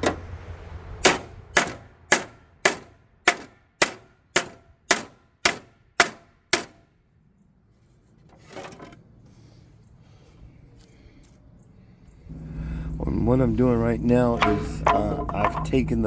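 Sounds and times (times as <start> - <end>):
hammer striking metal: 1.0 - 6.8, 14.2 - 15.9.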